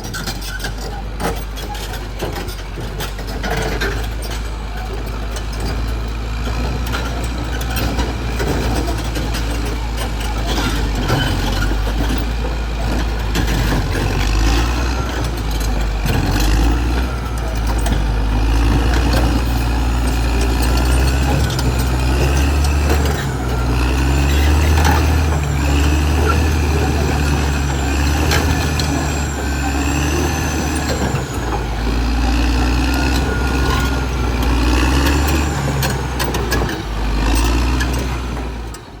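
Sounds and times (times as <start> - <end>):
bulldozer diesel engine rumbling: 0.0 - 39.0
high whining squeals: 8.9 - 38.0.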